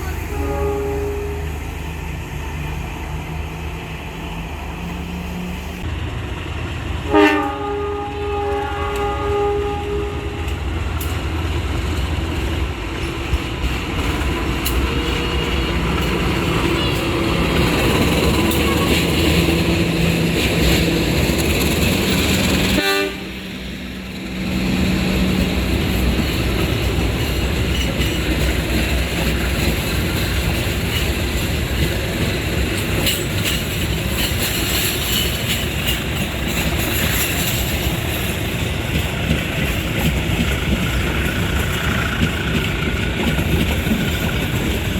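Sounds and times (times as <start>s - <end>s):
locomotive engine running: 9.0s - 44.9s
train wheels clacking over rail joints: 10.4s - 44.9s.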